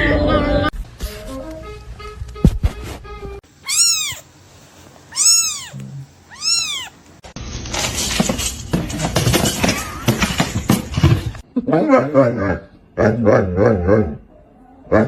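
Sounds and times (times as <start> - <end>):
cat meowing: 3.6 - 4.3, 5.1 - 7.0.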